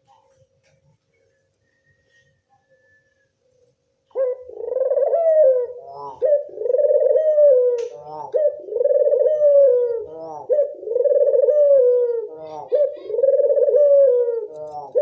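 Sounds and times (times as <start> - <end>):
dove cooing: 4.1 - 15.0.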